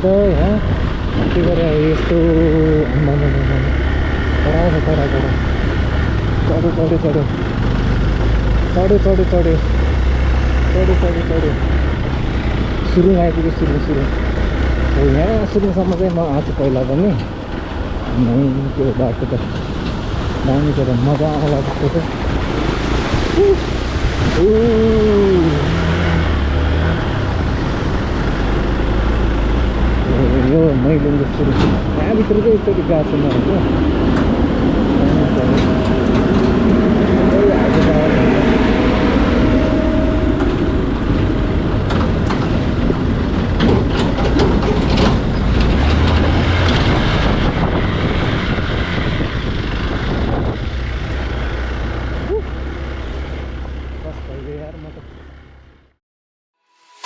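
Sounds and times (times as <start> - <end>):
road and wind rumble: 0.0 - 56.0
vehicle engine running: 0.0 - 56.0
rattles and knocks from bumps: 33.1 - 49.2.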